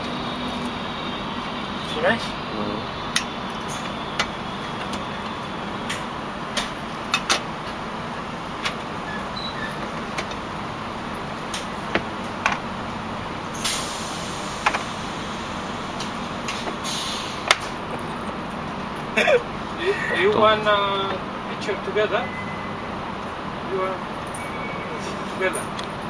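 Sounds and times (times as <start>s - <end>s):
train carriage running noise: 0.0s - 26.0s.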